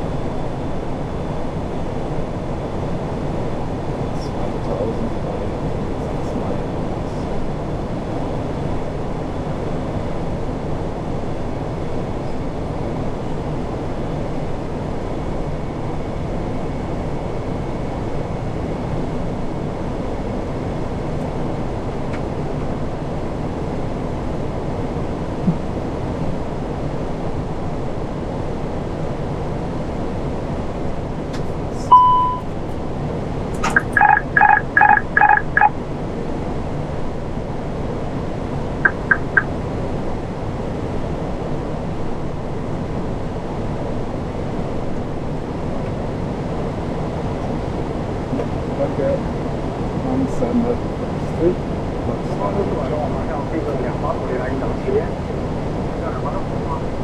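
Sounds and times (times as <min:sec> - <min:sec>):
aircraft cockpit rushing noise: 0:00.0 - 0:27.8, 0:29.7 - 0:57.0
electronic beep: 0:31.9 - 0:32.5, 0:33.6 - 0:35.7, 0:38.9 - 0:39.5
pulsed cockpit beeps: 0:31.9 - 0:32.5, 0:33.6 - 0:35.7, 0:38.9 - 0:39.5.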